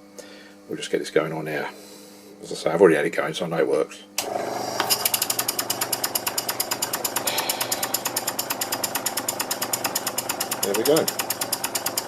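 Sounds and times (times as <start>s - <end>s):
steam engine exhaust puffing: 4.4s - 12.0s
compressed air rushing: 7.2s - 8.3s.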